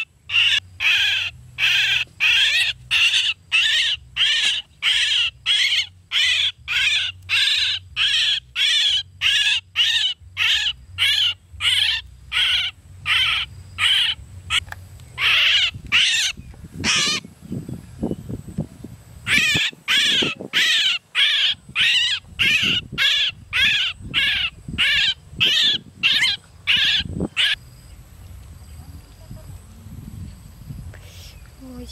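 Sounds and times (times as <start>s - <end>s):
bird harsh calls: 0.0s - 14.6s, 15.2s - 17.3s, 19.2s - 27.6s
low rumbling: 0.1s - 19.9s.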